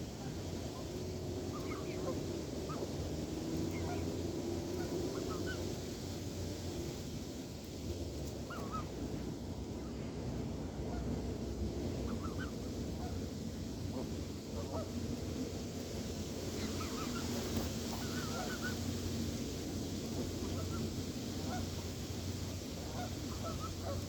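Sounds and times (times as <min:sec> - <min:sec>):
steady low rumble: 0:00.0 - 0:24.0
geese honking: 0:00.4 - 0:05.8, 0:08.3 - 0:09.2, 0:10.8 - 0:13.3, 0:16.4 - 0:19.4, 0:20.0 - 0:24.0.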